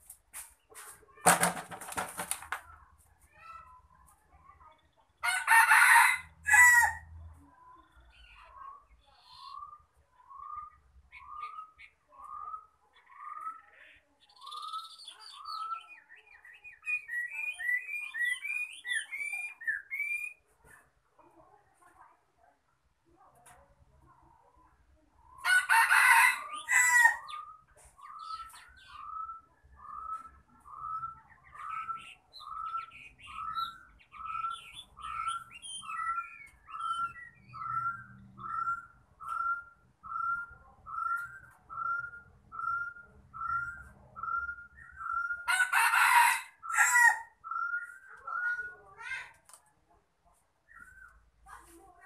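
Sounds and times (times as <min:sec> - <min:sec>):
rooster crowing: 0:05.2 - 0:07.1, 0:25.4 - 0:27.3, 0:45.5 - 0:47.3
caged bird whistled call: 0:14.3 - 0:20.4, 0:26.5 - 0:45.5, 0:46.7 - 0:48.7.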